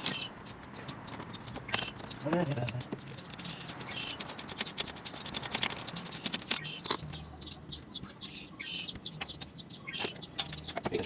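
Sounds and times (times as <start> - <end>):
bird chirps: 0.0 - 11.0
ratchet wrench clicking: 1.0 - 7.0.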